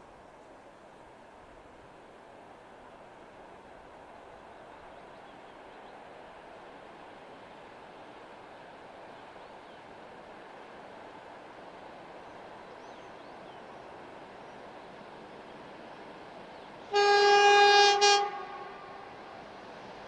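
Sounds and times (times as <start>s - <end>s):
locomotive air horn: 16.9s - 19.3s.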